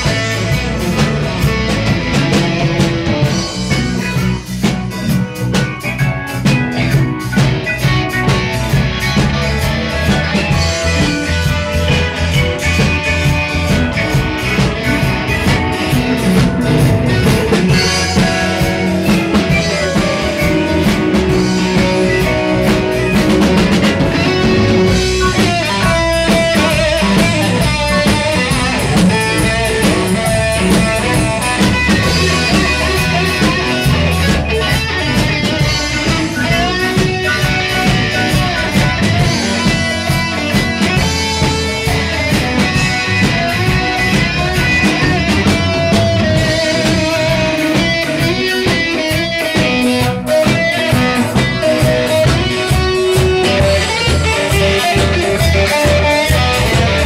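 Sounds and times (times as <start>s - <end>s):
drum kit: 0.0s - 57.0s
guitar: 0.0s - 57.0s
rock band playing: 0.0s - 57.0s.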